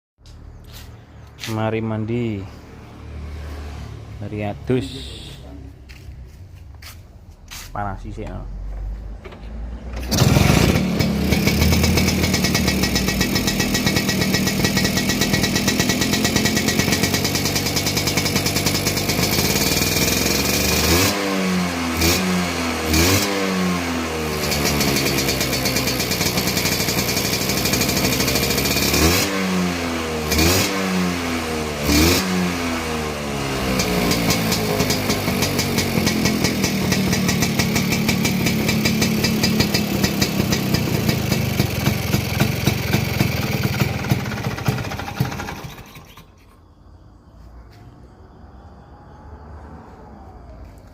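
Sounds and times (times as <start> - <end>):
scooter engine idling and revving: 0.2 - 46.6, 47.4 - 50.9.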